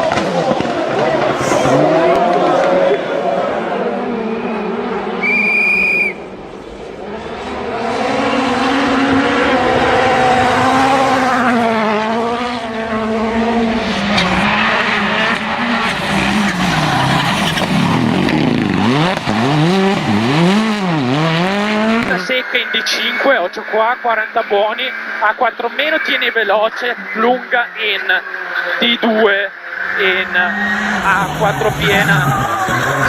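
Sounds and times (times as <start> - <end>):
rally car engine revving: 0.0 - 5.2, 6.1 - 23.2, 27.7 - 33.0
electronic beep: 22.1 - 25.1.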